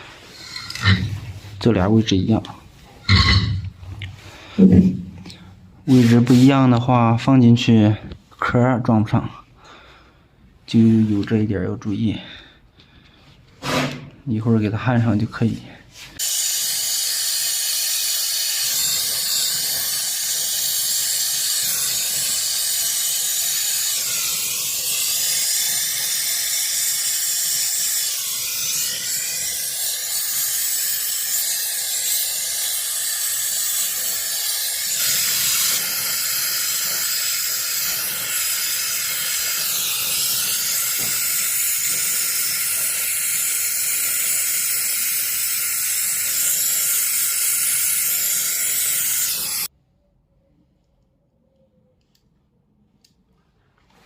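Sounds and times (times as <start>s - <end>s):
gas torch flame hissing: 0.0s - 1.7s, 16.2s - 49.7s.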